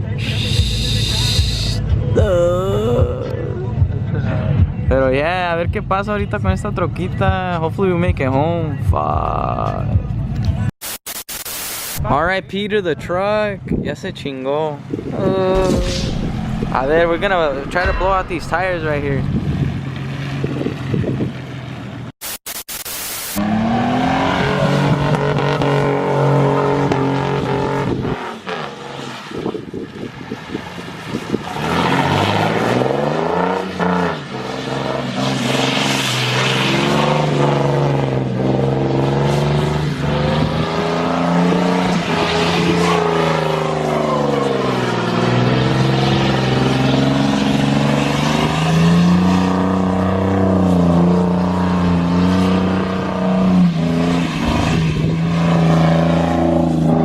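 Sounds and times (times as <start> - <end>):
pickup truck engine revving: 23.4 - 29.2, 30.8 - 57.0.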